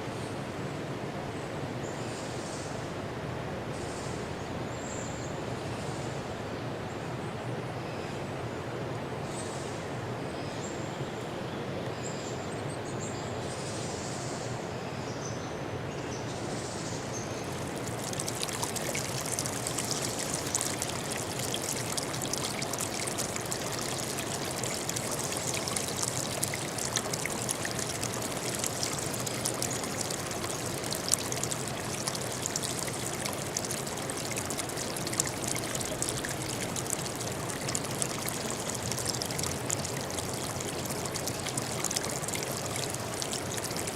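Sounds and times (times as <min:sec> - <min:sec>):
stream water splashing: 0:17.3 - 0:43.9.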